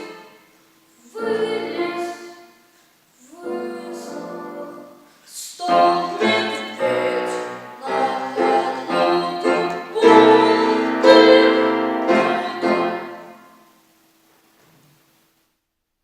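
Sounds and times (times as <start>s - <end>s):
simple piano piece: 5.6s - 13.6s.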